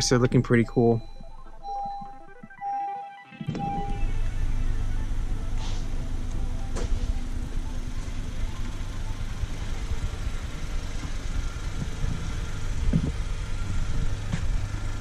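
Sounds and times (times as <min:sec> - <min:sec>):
car engine idling: 0:03.6 - 0:15.0.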